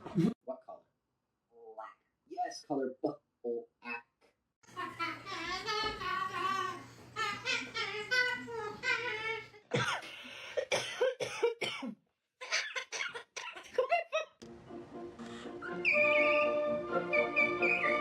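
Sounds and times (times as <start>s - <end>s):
parrot making cough-like sounds: 9.7s - 13.8s.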